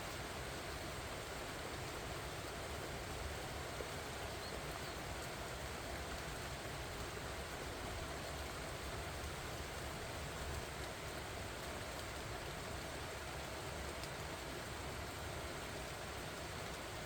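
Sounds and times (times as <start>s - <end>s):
rain falling on leaves: 0.0s - 17.0s.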